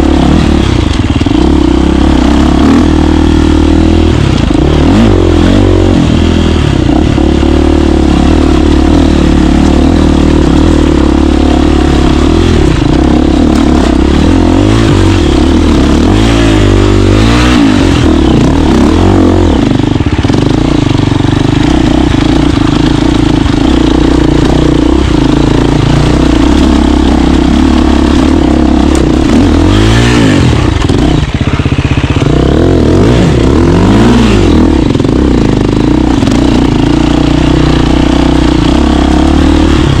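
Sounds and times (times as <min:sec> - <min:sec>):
dirt bike engine revving: 0:00.0 - 0:40.0.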